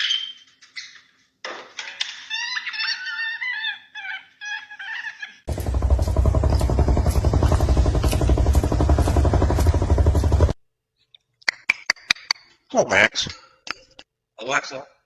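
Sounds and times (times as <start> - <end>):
parrot calling and chattering: 2.3 - 5.4
loud bass-heavy sound: 5.5 - 10.6.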